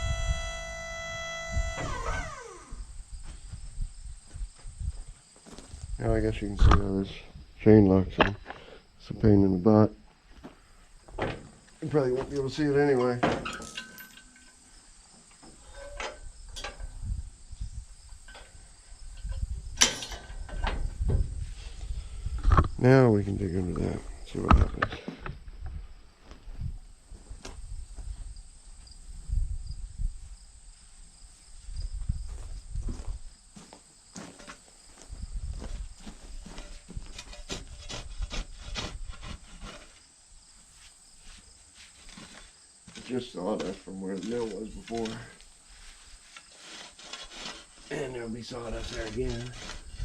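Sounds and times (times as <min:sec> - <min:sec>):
crickets chirping: 0:00.0 - 0:50.0
knocks and scrapes: 0:35.6 - 0:40.1, 0:40.8 - 0:50.0.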